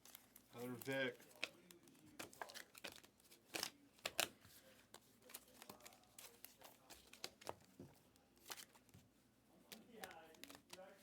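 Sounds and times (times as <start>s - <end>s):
trading cards flipped by hand: 8.4s - 8.9s, 9.7s - 10.9s.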